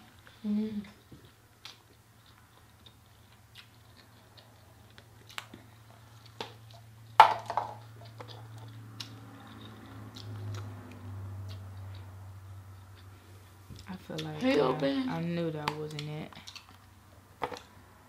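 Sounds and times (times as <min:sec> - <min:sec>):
chewing and biting chicken wing: 0:01.2 - 0:07.2, 0:07.9 - 0:14.3.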